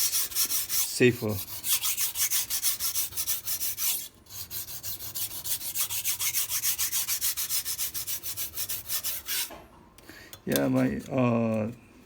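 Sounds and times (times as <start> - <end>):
knife on sharpening stone: 0.0 - 9.5.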